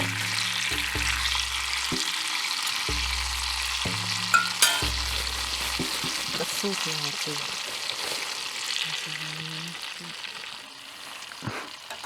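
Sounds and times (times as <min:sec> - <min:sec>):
soft music with low notes: 0:00.0 - 0:06.4
food sizzling in a skillet: 0:00.0 - 0:12.0.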